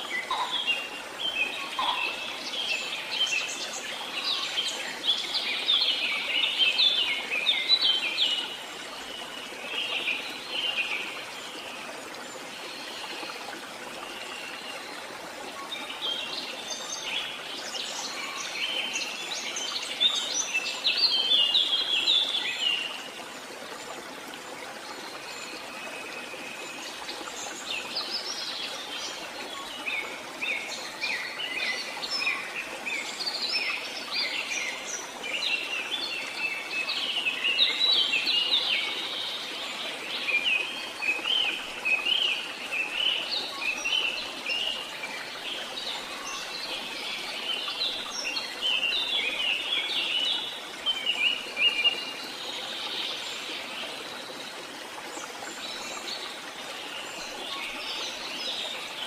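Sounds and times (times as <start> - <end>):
small birds chirping: 0.0 - 4.5.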